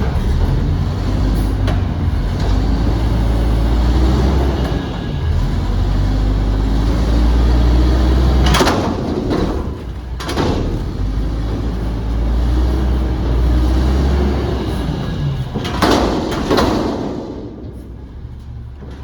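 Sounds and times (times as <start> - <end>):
garbage truck engine rumbling: 0.0 - 19.0
loud bangs: 14.6 - 18.3.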